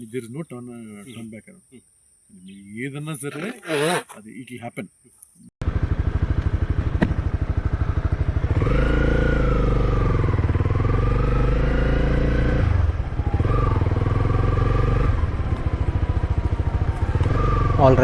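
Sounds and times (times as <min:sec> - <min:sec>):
motorcycle engine running: 0:05.6 - 0:18.0.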